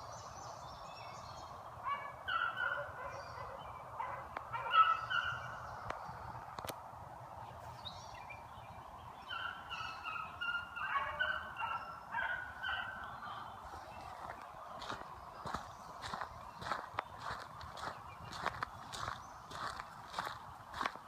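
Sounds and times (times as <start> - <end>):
beagles baying: 1.8 - 5.7, 9.2 - 13.1.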